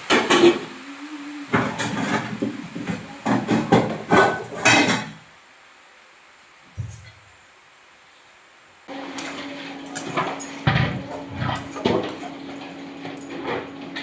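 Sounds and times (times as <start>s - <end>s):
pots and utensils clattering: 0.0s - 0.8s, 1.5s - 5.2s, 9.1s - 14.0s.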